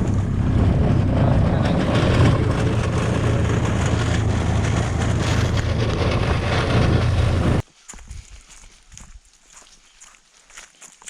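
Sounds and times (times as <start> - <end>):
golf cart running: 0.0 - 7.6.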